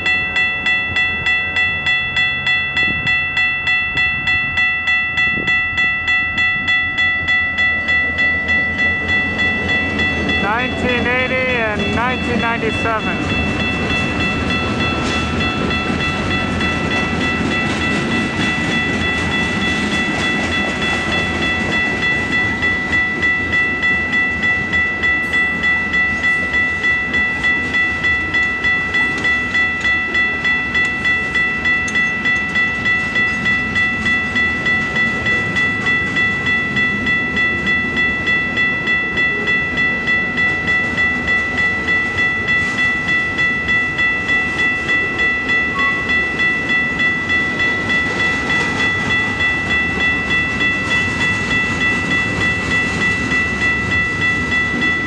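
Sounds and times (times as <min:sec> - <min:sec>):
crossing bell ringing: 0:00.0 - 0:55.0
freight cars rolling on rails: 0:00.0 - 0:55.0
locomotive engine rumble: 0:06.8 - 0:22.9.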